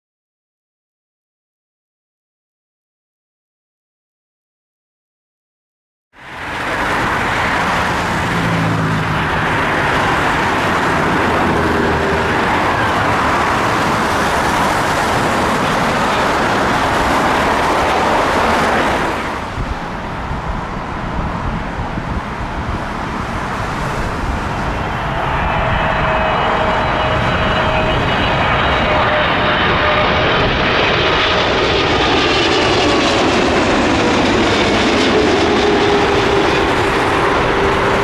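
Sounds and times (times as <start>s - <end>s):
high whine of airliner engines: 6.2s - 38.0s
jet airliner engines roaring: 6.2s - 38.0s.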